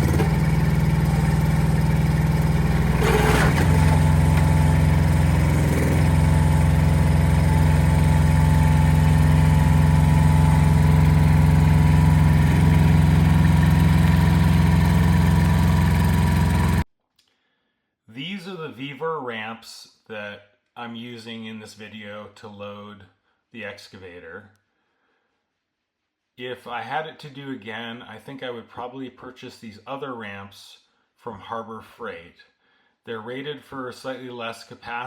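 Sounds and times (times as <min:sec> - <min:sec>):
excavator engine running: 0:00.0 - 0:16.8.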